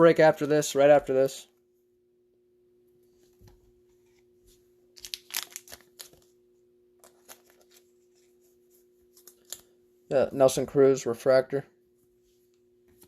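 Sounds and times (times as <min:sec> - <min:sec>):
faint steady hum: 0:00.0 - 0:13.0
cards and plastic sleeves rustling: 0:03.2 - 0:06.4, 0:07.0 - 0:09.8.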